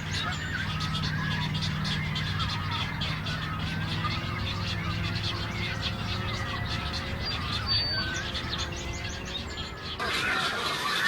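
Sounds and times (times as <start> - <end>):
birds chattering: 0.0 - 11.0.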